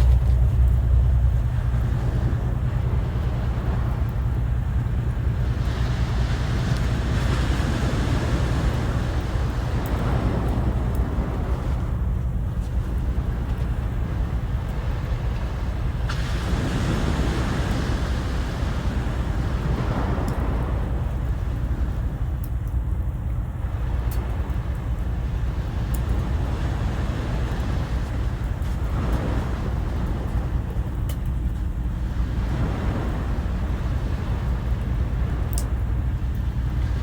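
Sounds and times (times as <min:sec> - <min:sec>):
low rumble of wind: 0:00.0 - 0:37.0
sea waves washing in: 0:00.0 - 0:37.0
faint sharp clicks: 0:06.7 - 0:06.9, 0:24.1 - 0:25.1, 0:25.9 - 0:26.2, 0:31.0 - 0:31.7, 0:35.5 - 0:36.5.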